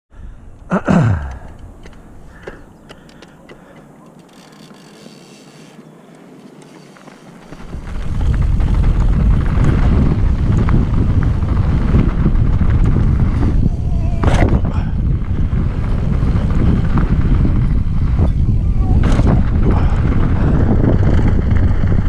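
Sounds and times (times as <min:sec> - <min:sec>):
bike rattling over rough trail: 0:01.7 - 0:22.0
wind buffeting microphone: 0:07.0 - 0:22.0.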